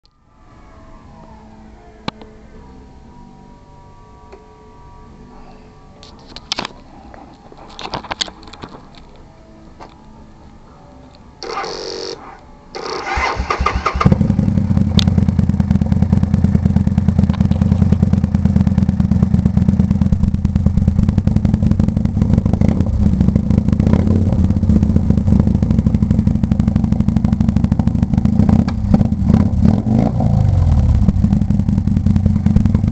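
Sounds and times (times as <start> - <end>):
electric starter cranking: 11.4 - 14.4
motorcycle engine idling loudly: 12.8 - 32.9.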